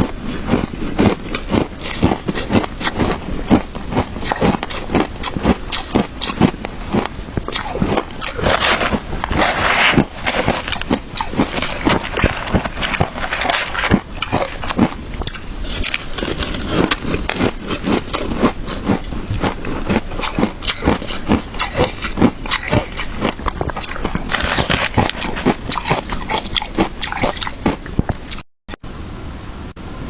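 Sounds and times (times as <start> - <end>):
ice being chewed crunching: 0.0 - 28.4.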